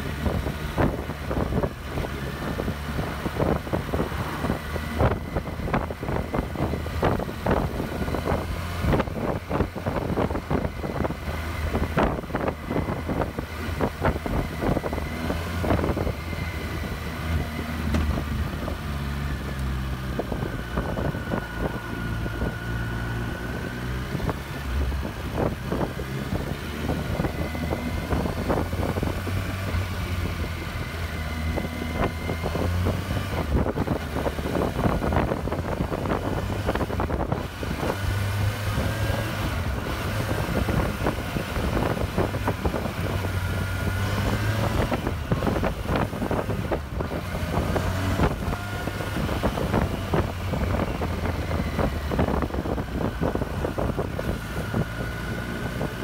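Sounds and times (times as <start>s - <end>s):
motorcycle engine running: 0.0s - 56.0s
wind buffeting microphone: 0.0s - 56.0s.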